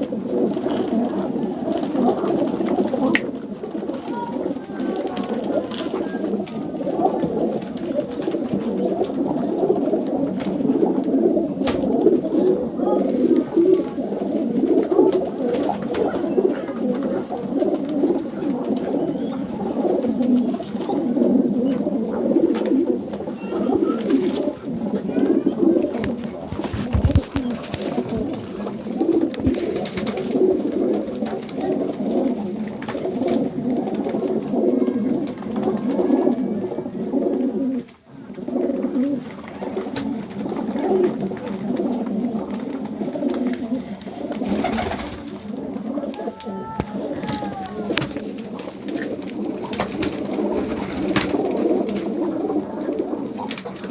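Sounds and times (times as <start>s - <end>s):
pigeons cooing: 0.0s - 53.9s.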